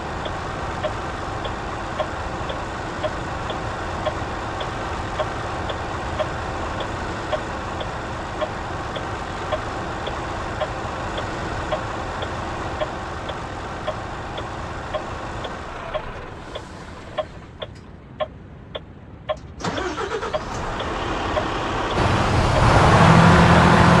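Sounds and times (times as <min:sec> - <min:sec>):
regular ticking: 0:00.0 - 0:23.7
truck engine running: 0:00.0 - 0:24.0.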